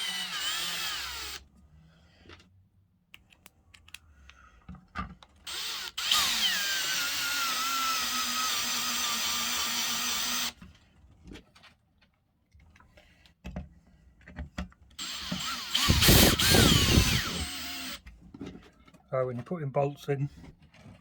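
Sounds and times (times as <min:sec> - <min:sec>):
power tool motor whining: 0:00.0 - 0:01.4, 0:05.5 - 0:10.6, 0:15.0 - 0:18.0.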